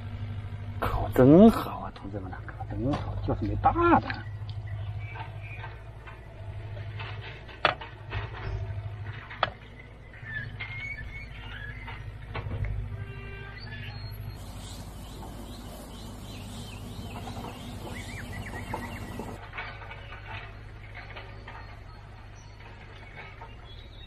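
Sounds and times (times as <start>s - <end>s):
outdoor background hum: 0.0s - 24.0s
birds chirping and calling: 10.1s - 12.2s, 13.6s - 19.4s.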